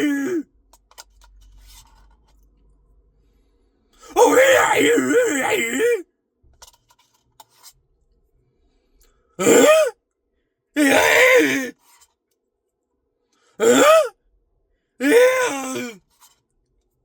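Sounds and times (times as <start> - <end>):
man making vocal noises: 0.0 - 0.4, 4.1 - 6.0, 9.4 - 9.9, 10.8 - 11.7, 15.0 - 16.0.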